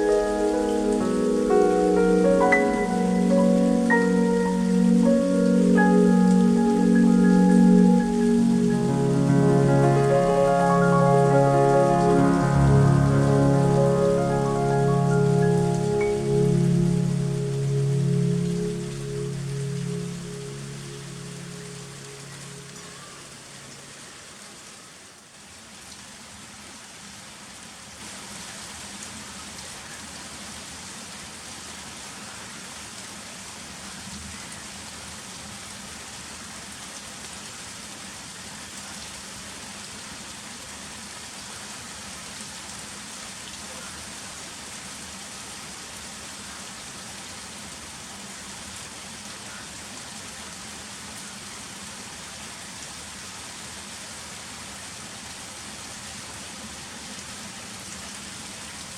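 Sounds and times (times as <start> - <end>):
heavy rain: 0.0 - 24.2.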